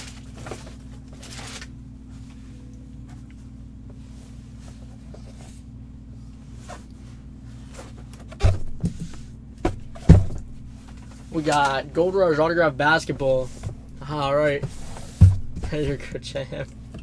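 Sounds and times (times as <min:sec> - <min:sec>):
handling rustles and clicks: 0:00.0 - 0:03.4, 0:07.6 - 0:12.0
steady low hum: 0:00.0 - 0:17.0.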